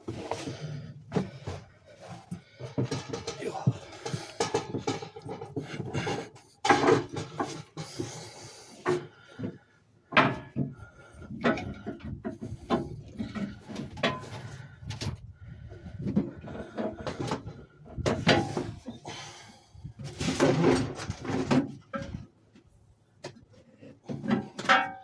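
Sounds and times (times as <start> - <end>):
tools knocking and scraping: 0.0 - 14.6, 23.2 - 25.0.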